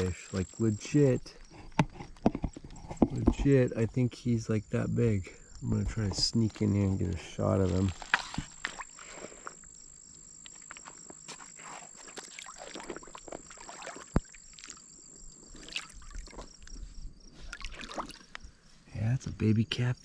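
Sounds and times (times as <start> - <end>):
high insect trill: 0.0 - 20.0
shallow water sloshing: 6.3 - 9.6, 11.8 - 18.6.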